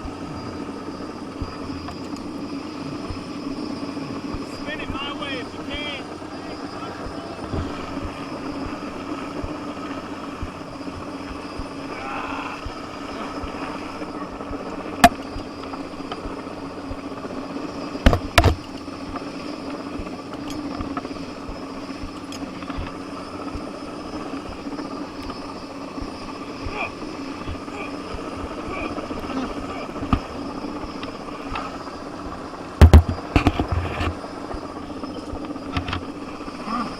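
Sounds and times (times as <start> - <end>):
helicopter rotor hum: 0.0 - 36.9
sharp knocks: 32.8 - 33.7.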